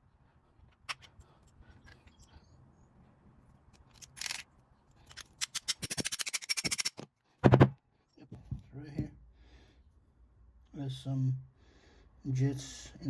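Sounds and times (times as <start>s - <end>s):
small metal parts clicking: 3.7s - 7.1s.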